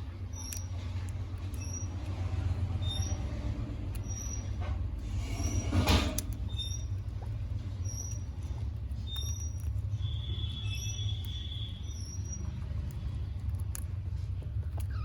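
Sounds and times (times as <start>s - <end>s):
guinea pigs squeaking: 0.0s - 15.0s.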